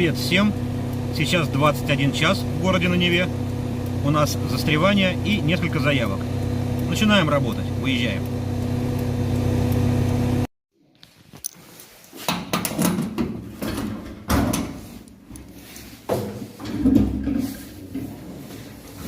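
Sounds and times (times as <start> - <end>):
car engine running: 0.0 - 10.5
knocks and clunks: 12.3 - 14.8, 16.1 - 18.4.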